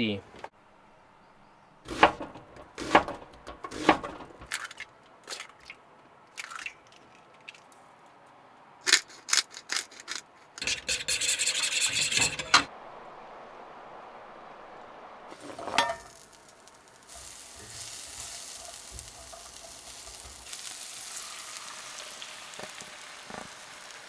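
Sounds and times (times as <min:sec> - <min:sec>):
cookware and utensils clattering: 0:01.9 - 0:04.8, 0:09.8 - 0:12.7, 0:15.3 - 0:16.5, 0:17.1 - 0:20.7
rough scraping rustle: 0:15.3 - 0:20.9
food frying in a pan: 0:15.3 - 0:24.0.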